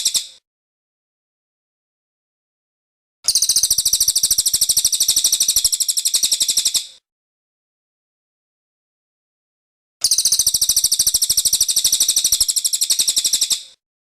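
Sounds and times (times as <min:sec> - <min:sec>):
bird high-pitched trill: 0:00.0 - 0:00.4, 0:03.3 - 0:06.9, 0:10.0 - 0:13.7.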